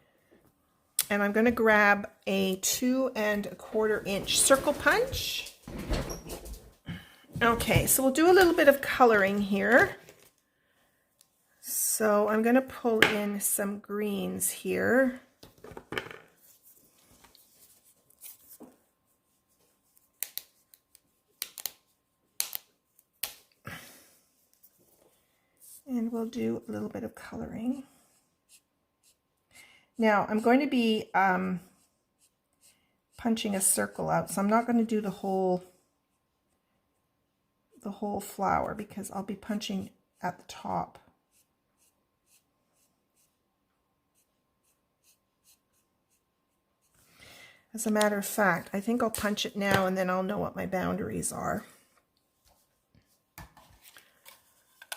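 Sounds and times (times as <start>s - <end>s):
markers clicking and rustling: 20.1s - 23.5s
colouring pen strokes on card: 28.5s - 29.2s, 41.3s - 43.4s, 44.1s - 47.1s.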